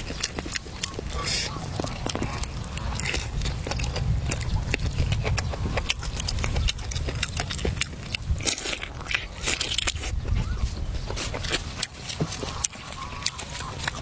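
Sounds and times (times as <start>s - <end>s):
chewing smacks: 0.0s - 14.0s
low rumble: 1.2s - 9.2s.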